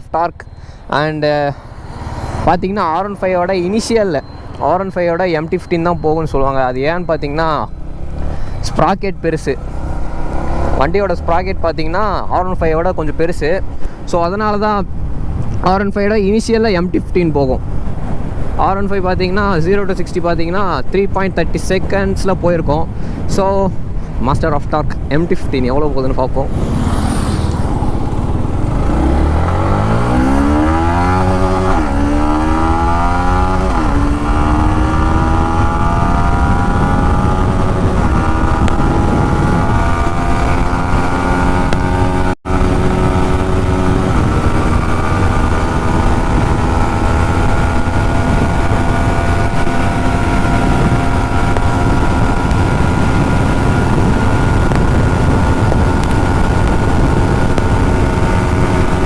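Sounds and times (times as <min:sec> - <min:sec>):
motorcycle engine accelerating: 0:05.4 - 0:12.5, 0:26.4 - 0:59.0.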